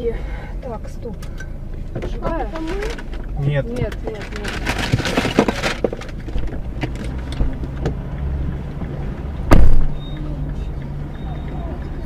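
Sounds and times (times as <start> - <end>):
car interior road rumble: 0.0 - 12.0
loud heavy thump: 9.4 - 10.0.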